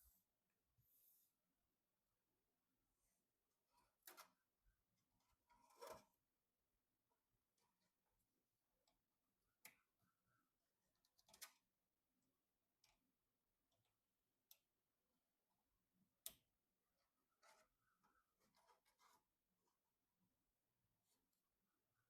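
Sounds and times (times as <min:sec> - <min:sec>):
faint clicks and taps: 0:13.7 - 0:14.8, 0:16.1 - 0:19.4.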